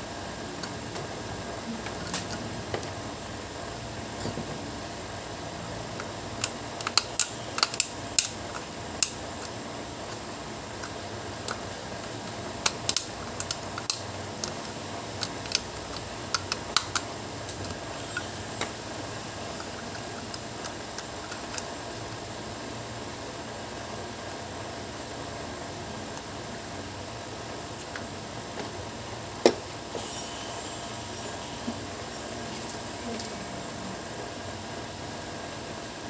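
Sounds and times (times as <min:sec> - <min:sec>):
small tools clicking and tapping: 0:06.4 - 0:10.2
steady hiss: 0:29.2 - 0:36.0.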